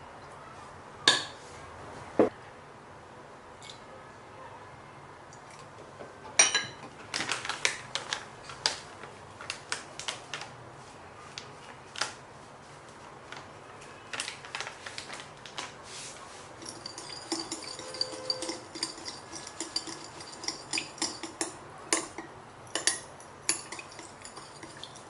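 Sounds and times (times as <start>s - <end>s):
kitchen items clicking and tapping: 16.6s - 25.0s.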